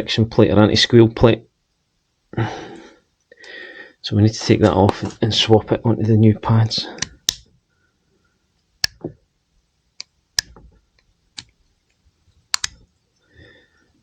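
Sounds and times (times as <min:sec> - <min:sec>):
sharp metallic clicks and snaps: 0:07.0 - 0:07.5, 0:08.8 - 0:09.2, 0:10.0 - 0:12.9.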